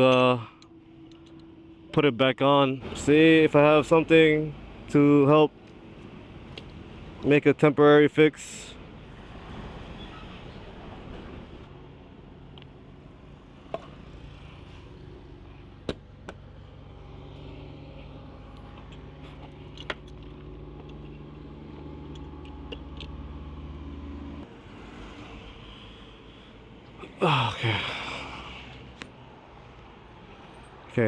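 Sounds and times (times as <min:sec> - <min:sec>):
clicks and knocks from handling parts: 0:18.6 - 0:23.2.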